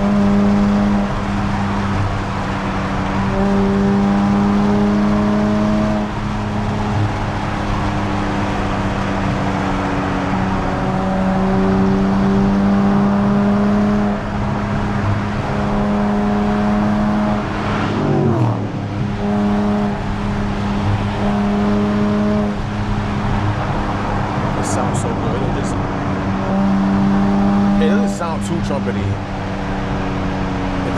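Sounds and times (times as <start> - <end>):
car engine droning: 0.0 - 30.9
road noise: 0.0 - 30.9.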